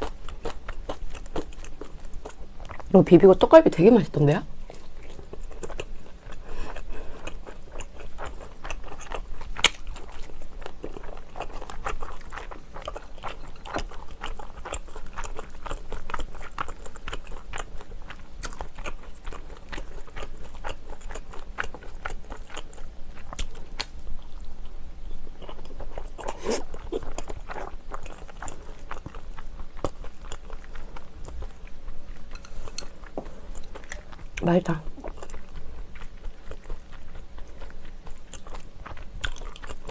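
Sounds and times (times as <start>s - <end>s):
close chewing and mouth sounds: 0.0s - 39.9s.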